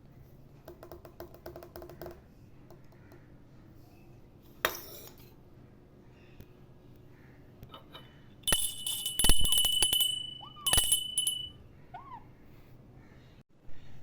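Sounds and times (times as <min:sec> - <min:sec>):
small metal bell ringing: 0:08.5 - 0:11.7.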